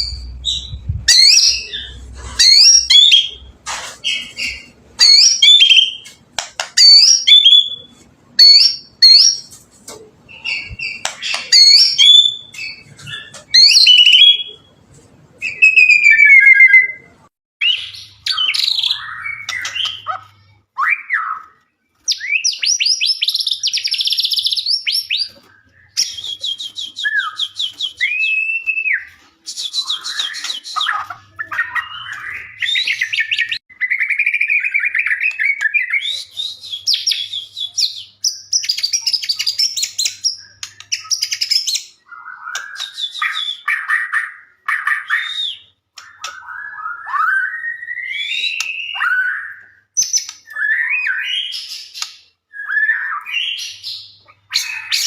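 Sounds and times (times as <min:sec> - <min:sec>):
songbird singing: 0:15.4 - 0:55.0.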